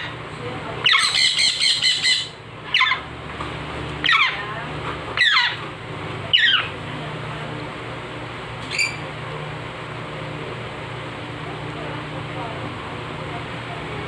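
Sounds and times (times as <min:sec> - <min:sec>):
low steady hum: 0:00.0 - 0:14.0
baby parrot squealing: 0:00.8 - 0:03.0, 0:04.0 - 0:04.4, 0:05.2 - 0:05.6, 0:06.3 - 0:06.8, 0:08.7 - 0:09.0.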